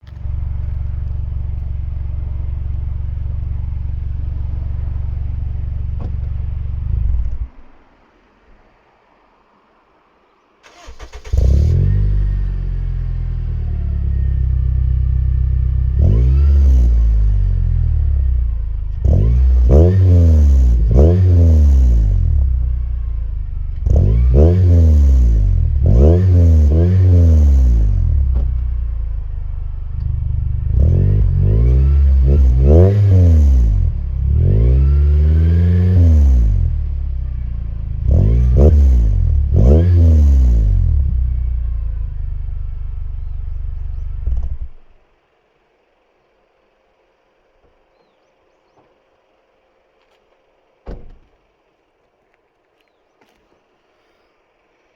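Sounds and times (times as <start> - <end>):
car engine starting and revving: 0.0 - 8.1, 10.6 - 46.4.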